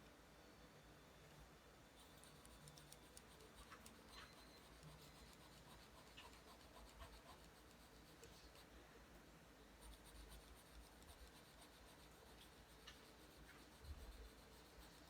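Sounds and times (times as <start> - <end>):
pencil scratching on paper: 2.0 - 8.7, 9.8 - 15.0.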